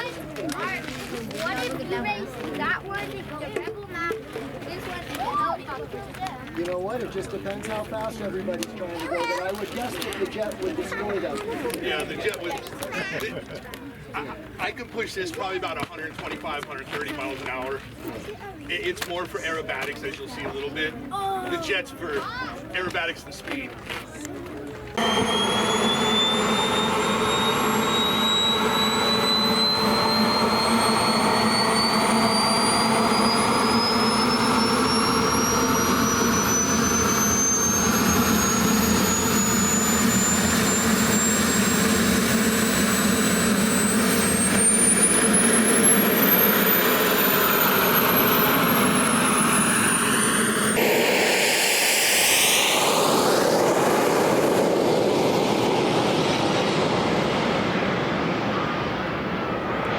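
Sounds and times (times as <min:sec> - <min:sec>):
model jet turbine whine: 0:24.9 - 0:59.9
sweeping rush: 0:25.0 - 0:59.9.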